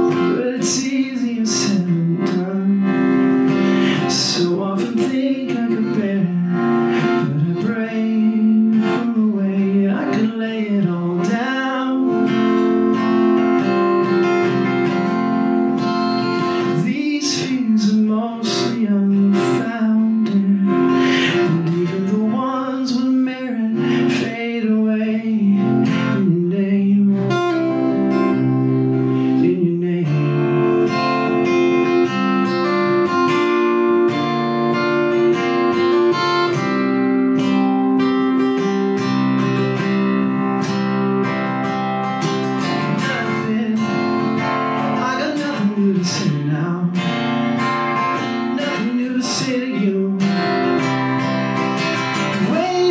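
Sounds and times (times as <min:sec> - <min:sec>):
acoustic guitar: 0:00.0 - 0:52.9
person singing: 0:00.0 - 0:52.9.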